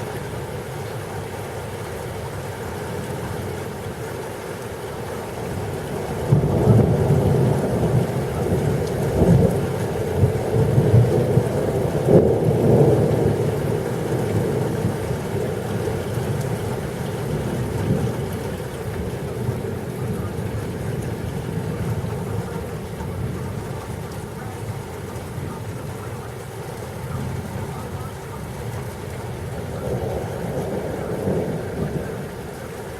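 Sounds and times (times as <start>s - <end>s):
steady rain: 0.0s - 32.9s
thunder rumbling: 5.4s - 32.9s.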